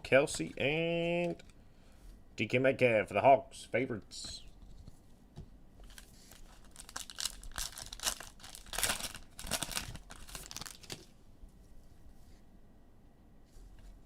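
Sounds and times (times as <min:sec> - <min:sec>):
foil wrapper tearing and crinkling: 0:05.8 - 0:11.1.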